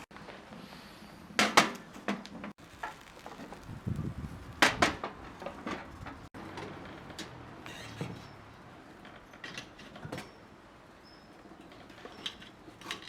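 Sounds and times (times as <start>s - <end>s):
low scraping and handling noise: 2.4s - 10.3s.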